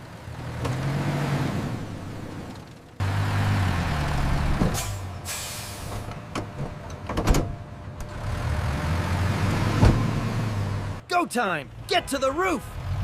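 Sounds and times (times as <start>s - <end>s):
heavy vehicle engine humming: 0.0s - 11.1s
air brake hiss: 4.8s - 6.0s.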